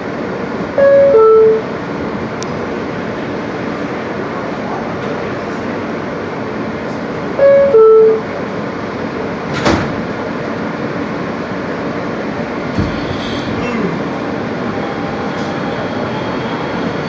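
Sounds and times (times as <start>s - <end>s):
subway car running noise: 0.0s - 17.0s
sliding doors shutting: 9.4s - 10.2s, 12.6s - 16.0s.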